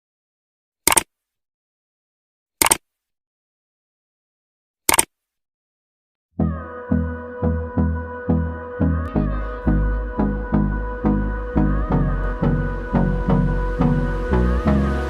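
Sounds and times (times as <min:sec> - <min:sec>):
music with steady beat: 0:06.4 - 0:15.0.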